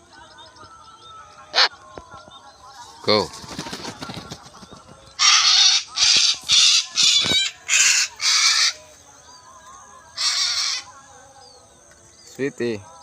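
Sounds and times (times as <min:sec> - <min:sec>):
parrot squawking: 0:01.5 - 0:01.7, 0:05.2 - 0:08.8, 0:10.2 - 0:10.9.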